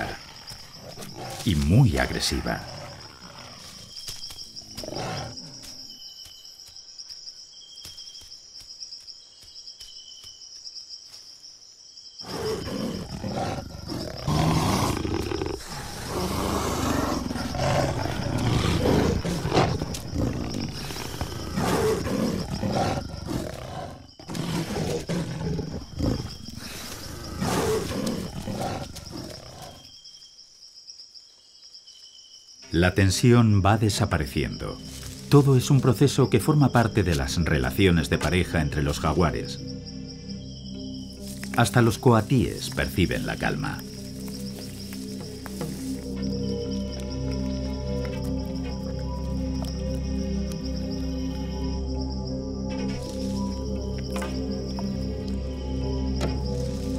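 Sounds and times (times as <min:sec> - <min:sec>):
jaguars growling and snarling: 0:00.0 - 0:06.0, 0:12.2 - 0:29.9, 0:41.0 - 0:56.9
high insect drone: 0:00.0 - 0:56.9.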